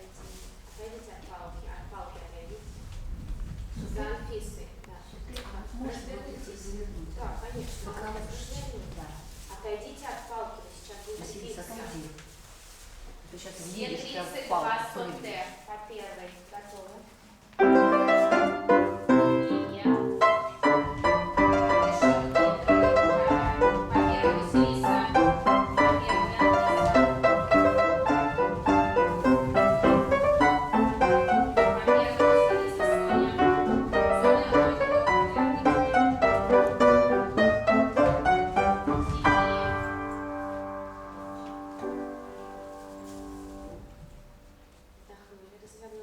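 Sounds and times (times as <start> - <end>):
piano music with even beat: 17.6 - 44.0.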